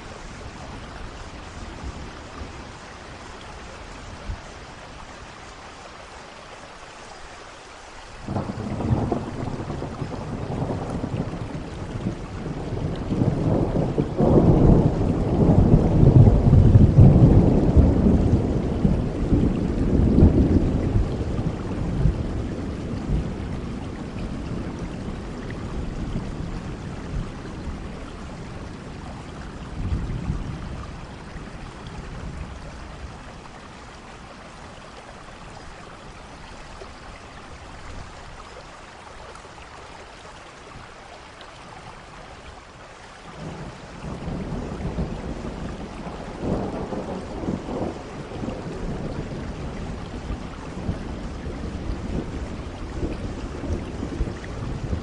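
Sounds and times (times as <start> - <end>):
steady rain: 0.0 - 55.0
rolling thunder: 8.3 - 34.0, 43.4 - 55.0.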